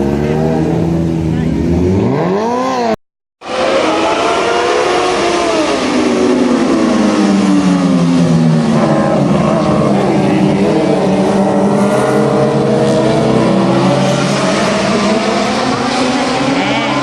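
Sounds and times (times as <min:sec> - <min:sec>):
racing motorcycle engines: 0:00.0 - 0:17.0.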